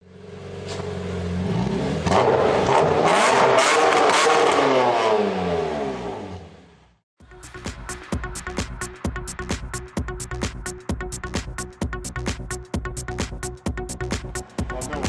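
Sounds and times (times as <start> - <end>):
diesel engine revving under load: 0.6 - 6.6.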